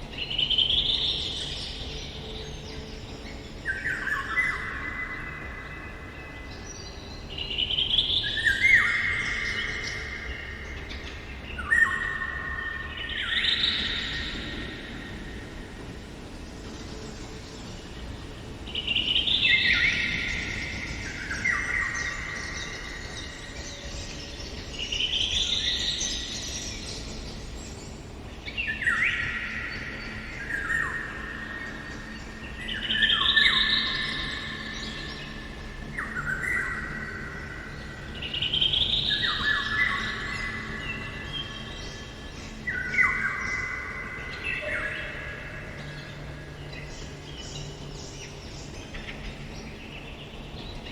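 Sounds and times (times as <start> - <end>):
bird singing fluty notes: 0.0 - 50.9.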